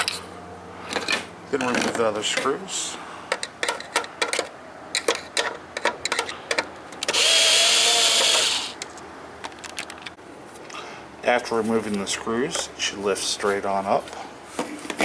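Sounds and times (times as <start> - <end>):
power drill whining: 7.1 - 8.8.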